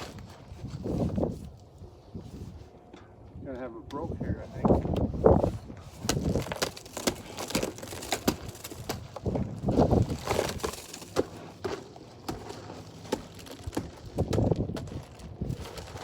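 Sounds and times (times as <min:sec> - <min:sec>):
ice cracking and crunching: 0:05.9 - 0:16.0.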